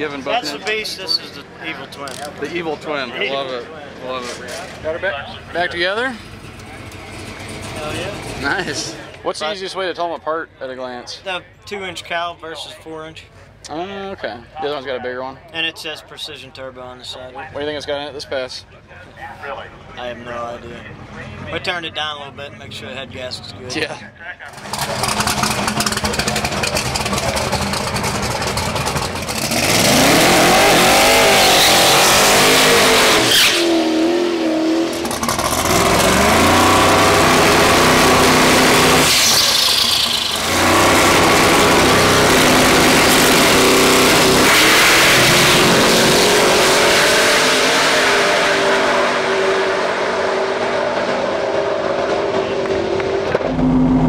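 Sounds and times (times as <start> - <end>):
engine revving and accelerating: 24.5 - 54.0.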